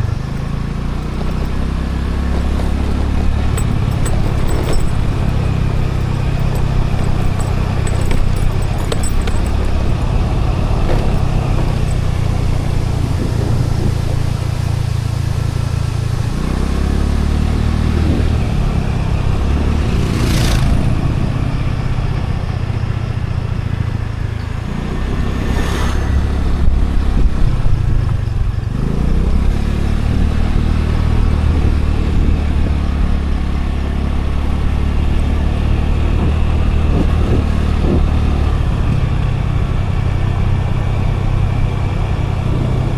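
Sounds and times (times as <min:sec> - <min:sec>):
scooter engine running: 0:00.0 - 0:42.9
wind and road rumble: 0:00.0 - 0:42.9
brief whooshes: 0:25.0 - 0:26.9.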